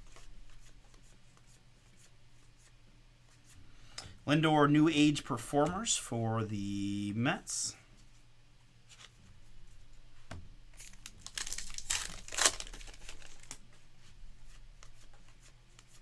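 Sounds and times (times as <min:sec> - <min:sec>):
wrapper tearing and crumpling: 0:10.8 - 0:13.6.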